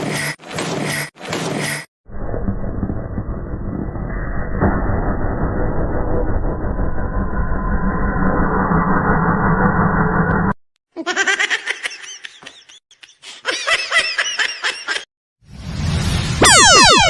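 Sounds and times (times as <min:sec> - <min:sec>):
high-pitched laughter: 0:11.0 - 0:15.1
cartoon sliding tones effect: 0:16.4 - 0:17.0.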